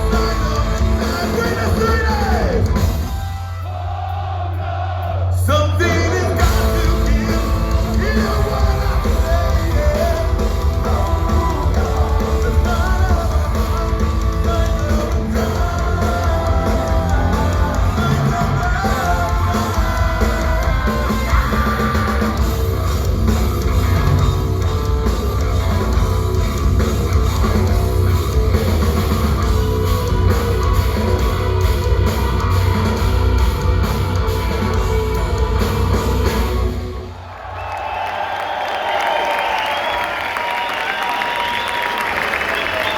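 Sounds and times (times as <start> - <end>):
bass guitar: 0.0 - 3.6, 5.5 - 37.0
distorted electric guitar: 6.4 - 37.0.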